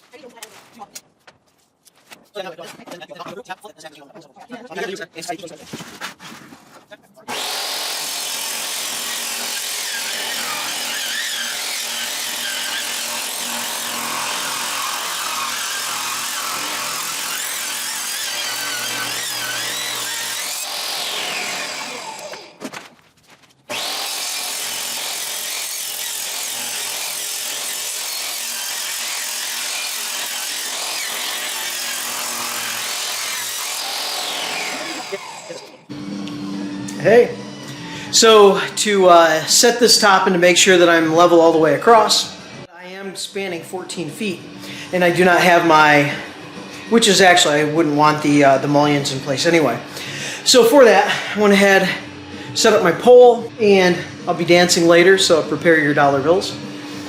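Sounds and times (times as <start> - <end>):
power tool motor winding down: 7.3 - 22.6, 23.7 - 38.8.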